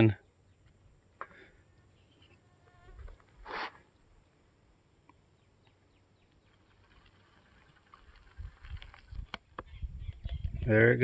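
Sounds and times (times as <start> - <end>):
hot water pouring into pouch: 6.6 - 9.4.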